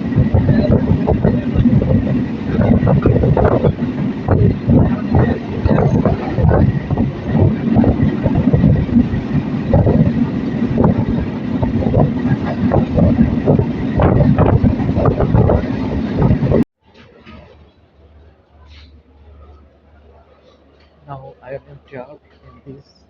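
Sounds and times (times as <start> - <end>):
train rattling and clattering: 0.0 - 16.6
train rumbling: 0.0 - 23.0.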